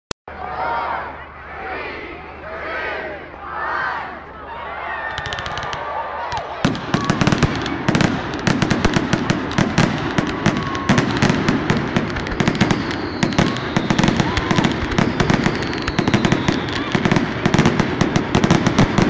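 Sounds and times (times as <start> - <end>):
crowd voices: 0.3 - 19.0
sharp cracks and pops: 5.1 - 5.9.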